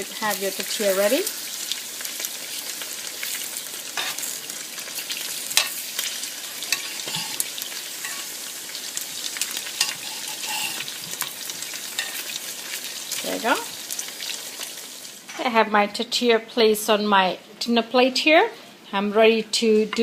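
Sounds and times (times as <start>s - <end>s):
oil sizzling and popping: 0.0s - 15.4s.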